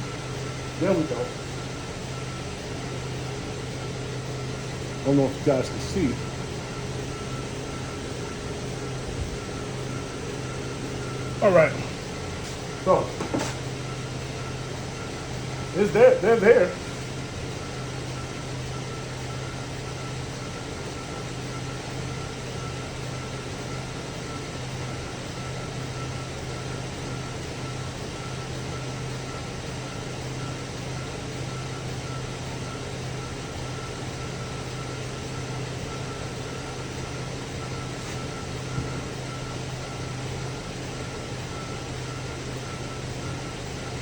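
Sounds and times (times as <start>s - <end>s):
car engine idling: 0.0s - 18.2s
faint steady whine: 0.0s - 44.0s.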